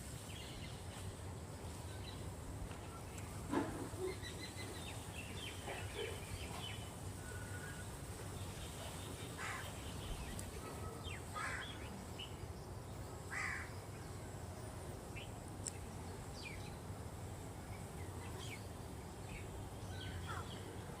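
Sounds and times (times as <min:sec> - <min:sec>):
birds calling harshly: 0:03.6 - 0:12.0, 0:13.3 - 0:13.8, 0:19.3 - 0:20.8.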